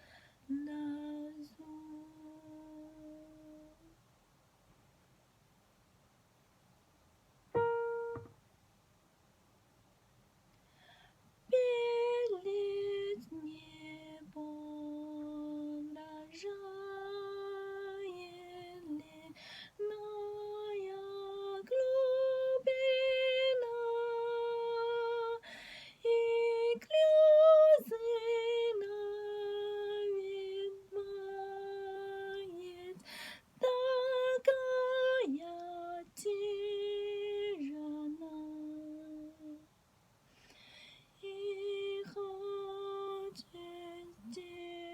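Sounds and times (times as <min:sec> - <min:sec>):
person singing unaccompanied: 0:00.0 - 0:04.0, 0:11.5 - 0:25.4, 0:26.0 - 0:39.7, 0:41.2 - 0:44.9.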